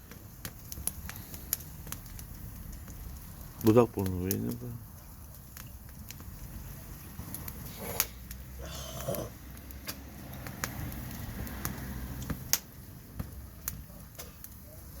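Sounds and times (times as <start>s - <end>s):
bonfire crackling and popping: 0.0s - 15.0s.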